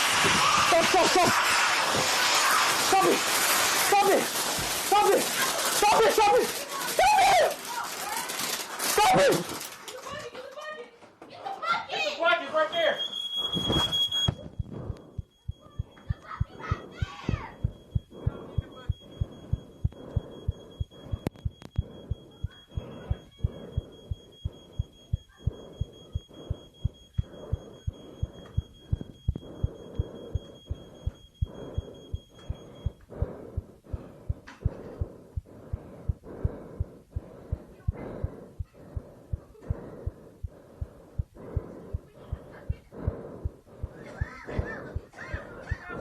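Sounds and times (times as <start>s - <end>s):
hum: 13.6s - 45.1s.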